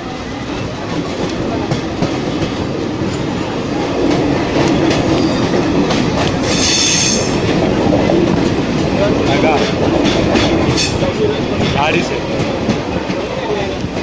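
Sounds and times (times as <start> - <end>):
train rumbling on track: 0.0 - 14.0
high wheel squeal: 6.4 - 7.4.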